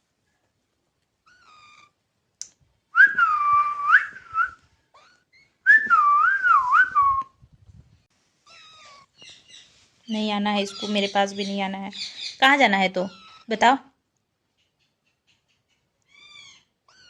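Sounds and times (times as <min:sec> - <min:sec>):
whistled phrases: 0:03.0 - 0:04.6, 0:05.7 - 0:07.4.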